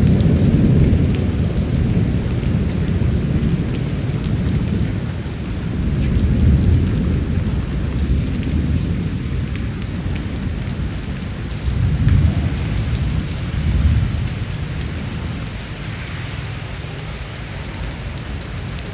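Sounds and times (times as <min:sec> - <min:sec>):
rolling rumble of thunder: 0:00.0 - 0:18.9
steady rain: 0:00.0 - 0:18.9
drips ticking: 0:05.6 - 0:14.9.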